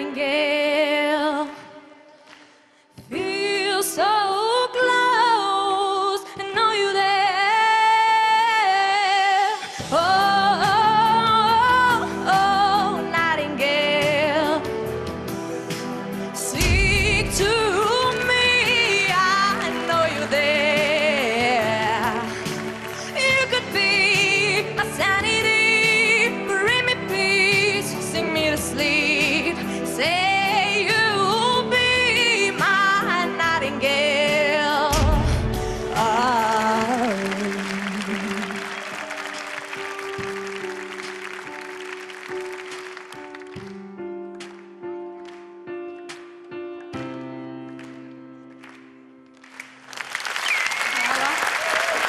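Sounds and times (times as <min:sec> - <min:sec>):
low backing accompaniment: 0:09.8 - 0:49.7
person singing with vibrato: 0:16.4 - 0:39.2.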